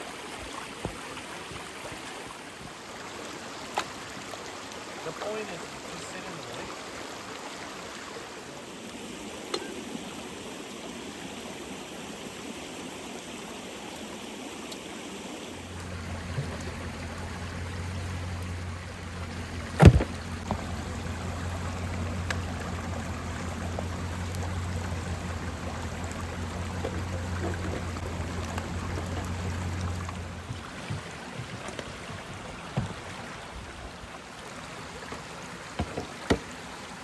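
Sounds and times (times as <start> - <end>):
creek water flowing: 0.0 - 37.0
low steady hum: 15.6 - 30.7.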